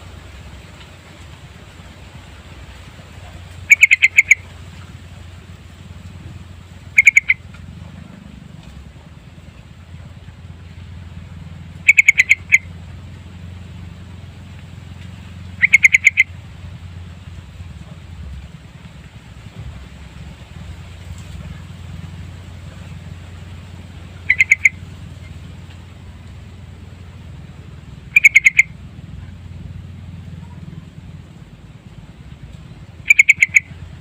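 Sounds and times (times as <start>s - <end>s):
steady low hum: 0.0s - 34.0s
bird calling quick repeated notes: 3.6s - 4.5s, 6.9s - 7.5s, 11.8s - 12.7s, 15.5s - 16.4s, 24.2s - 24.9s, 28.1s - 28.8s, 33.0s - 33.8s.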